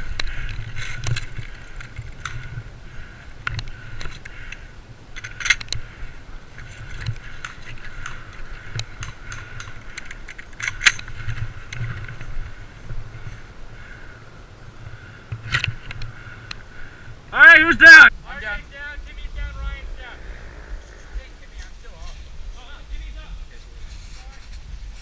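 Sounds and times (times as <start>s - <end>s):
gear rattling and clicking: 6.5s - 12.4s
low rumble of movement: 18.1s - 23.8s.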